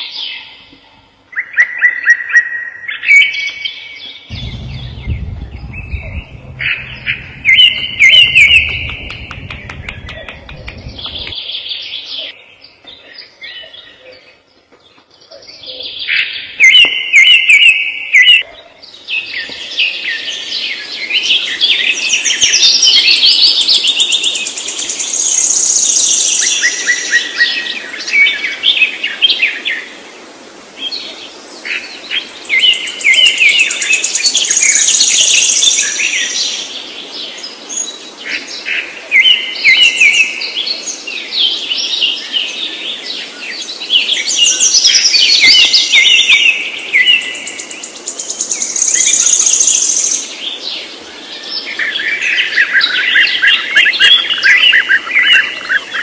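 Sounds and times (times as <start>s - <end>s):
songbird trilling and chirping: 1.4s - 11.6s, 44.0s - 50.3s.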